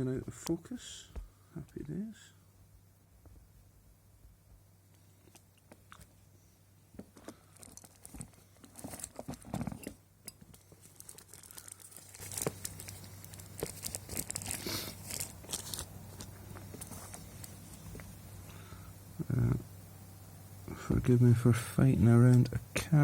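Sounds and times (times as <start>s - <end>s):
low steady hum: 0.0s - 23.0s
rustling crinkling handling: 7.0s - 18.1s.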